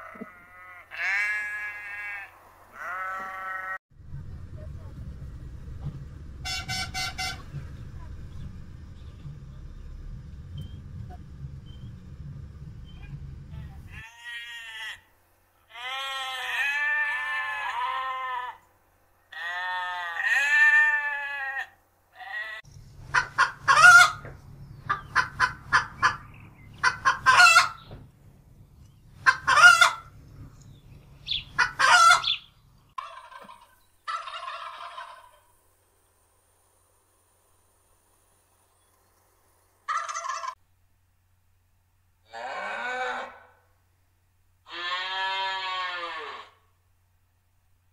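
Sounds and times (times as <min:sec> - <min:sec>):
low hum: 0:03.9 - 0:14.0, 0:22.7 - 0:33.0
turkeys gobbling: 0:23.0 - 0:27.9, 0:29.2 - 0:30.2, 0:31.3 - 0:35.4, 0:39.9 - 0:40.6.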